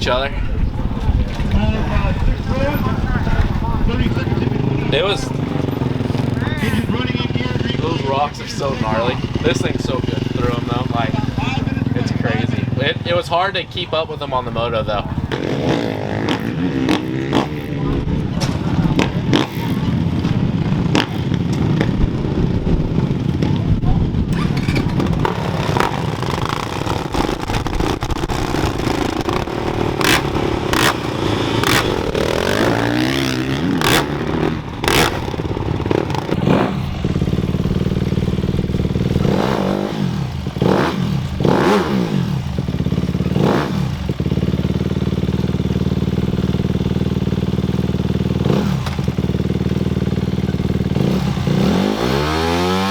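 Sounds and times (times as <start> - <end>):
bikes passing by: 0.0 - 52.9
dirt bike engines revving: 0.0 - 52.9
sharp clicks and clatter: 24.3 - 39.5.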